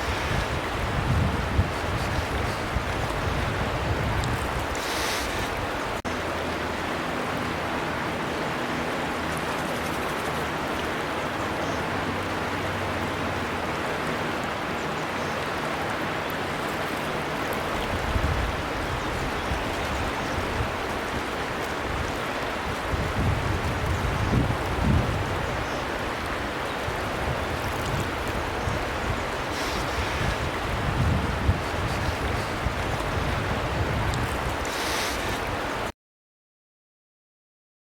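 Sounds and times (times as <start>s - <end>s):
low gusty rumbles: 0.0s - 4.8s, 27.1s - 34.6s
river water rushing: 0.0s - 35.9s.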